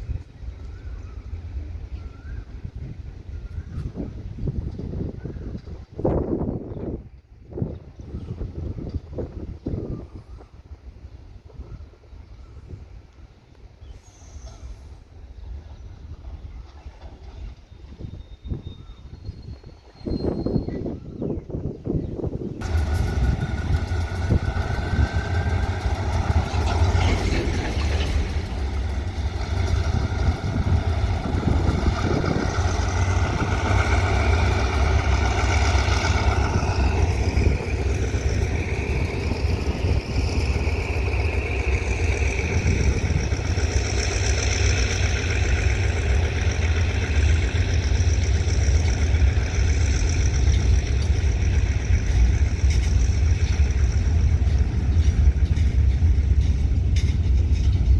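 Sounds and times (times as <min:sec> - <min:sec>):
diesel train engine rumbling: 0:00.0 - 0:57.9.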